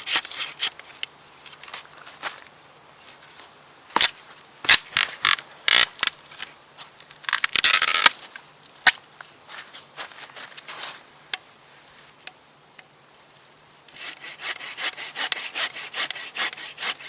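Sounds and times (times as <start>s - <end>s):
wood scraping and crunching: 0.0s - 11.1s.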